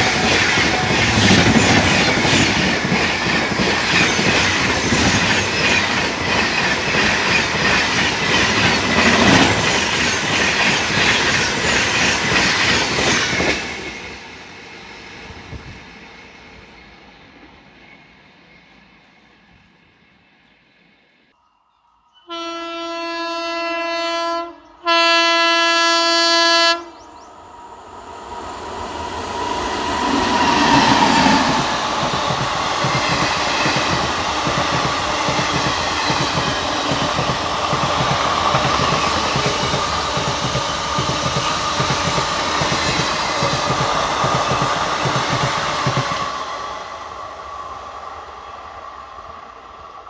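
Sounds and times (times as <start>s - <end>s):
train horn blasts: 0.0s - 2.2s, 22.2s - 27.1s
train wheels clattering over rails: 0.0s - 14.1s, 29.8s - 46.5s.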